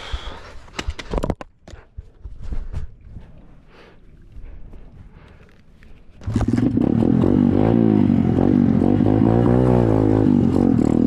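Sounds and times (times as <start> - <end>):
dirt bike engine revving: 6.2 - 11.0.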